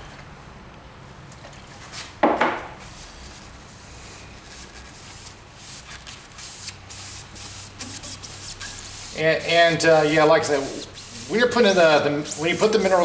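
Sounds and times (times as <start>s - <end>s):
paper towel rubbing wood: 2.8s - 13.0s.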